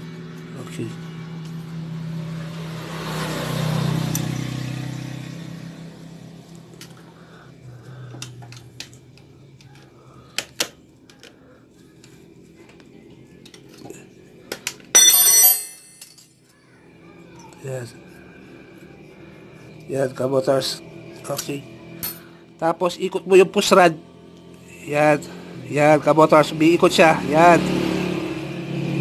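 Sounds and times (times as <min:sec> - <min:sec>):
metallic ringing clatter: 0:14.9 - 0:16.3.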